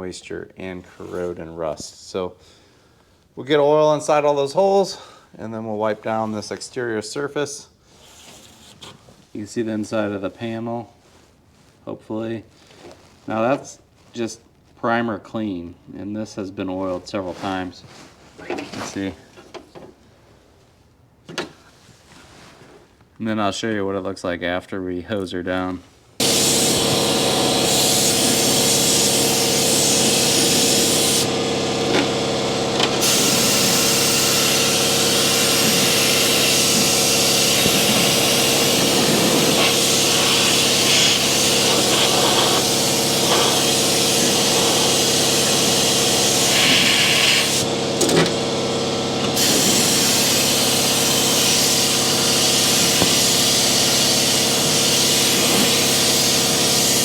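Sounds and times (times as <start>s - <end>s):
spray gun hissing: 26.2s - 57.0s.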